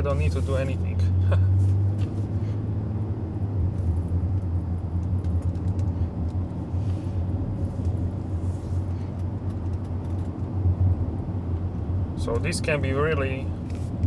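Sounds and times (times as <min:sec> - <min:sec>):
road and drivetrain rumble in car: 0:00.0 - 0:14.0.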